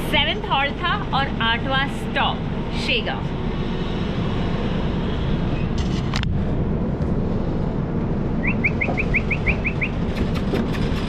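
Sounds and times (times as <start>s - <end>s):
train rumble: 0.0s - 11.0s
short rising chirps: 8.4s - 10.0s.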